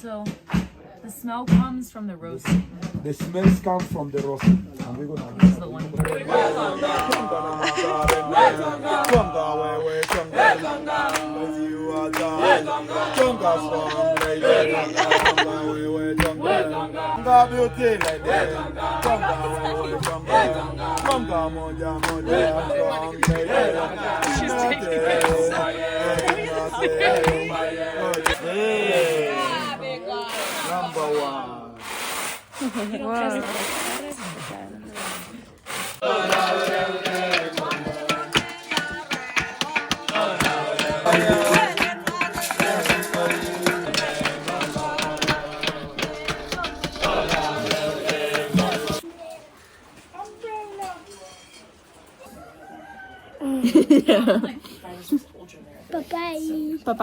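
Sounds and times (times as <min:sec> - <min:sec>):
voices chanting and singing: 0:00.0 - 0:49.3
fast busy drumming: 0:01.4 - 0:28.4, 0:36.0 - 0:49.0
steady beat: 0:02.5 - 0:30.0, 0:36.0 - 0:49.0.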